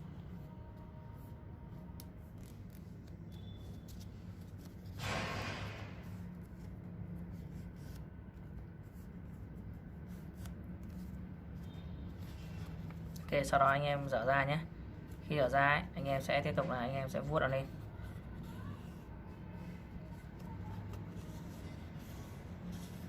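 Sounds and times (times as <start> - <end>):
paper being folded: 0.1 - 14.1, 16.8 - 23.0
paper swipe: 2.4 - 6.3, 20.0 - 23.0.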